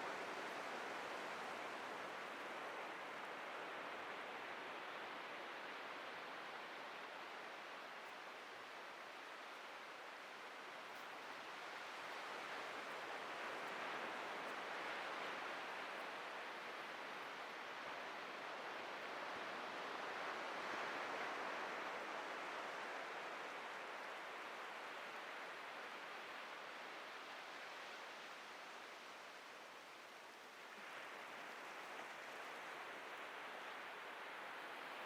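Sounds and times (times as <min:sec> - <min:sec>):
surf waves breaking on beach: 0:00.0 - 0:35.0.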